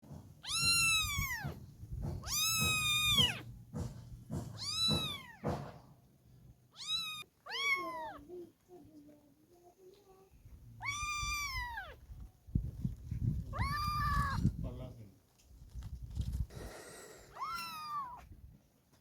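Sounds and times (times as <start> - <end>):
kitten meowing: 0.4 - 1.6, 2.2 - 3.5, 4.6 - 5.5, 6.7 - 8.3, 10.8 - 12.0, 13.5 - 14.4, 17.3 - 18.2.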